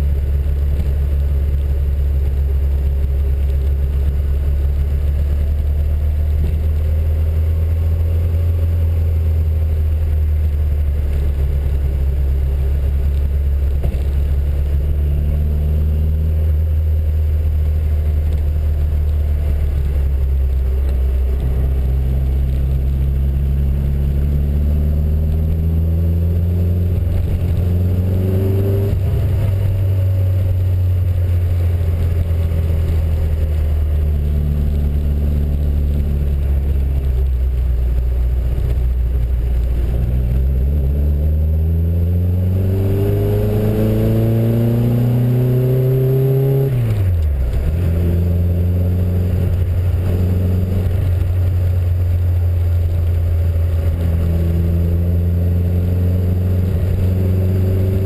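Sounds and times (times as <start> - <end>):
car engine accelerating: 0.0 - 58.0
road noise inside car: 0.0 - 58.0.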